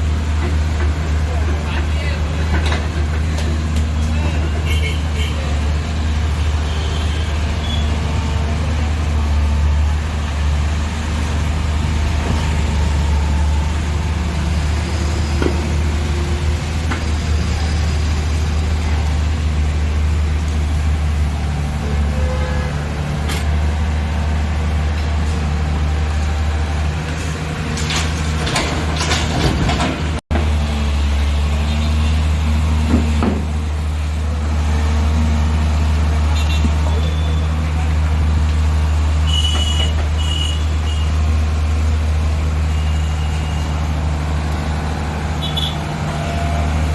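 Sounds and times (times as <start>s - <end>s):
diesel engine humming: 0.0s - 46.9s
metallic clanks and rattles: 27.0s - 30.2s.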